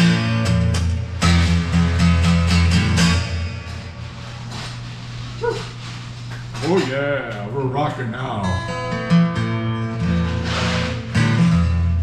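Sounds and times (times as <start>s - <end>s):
bass line: 0.0s - 4.0s
strummed guitar chords: 0.0s - 4.7s, 6.9s - 12.0s.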